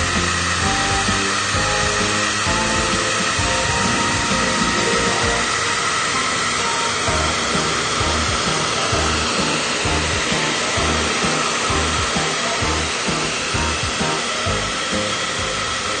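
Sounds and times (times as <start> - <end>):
hair dryer running: 0.0 - 16.0
background music with bass beat: 7.1 - 15.6.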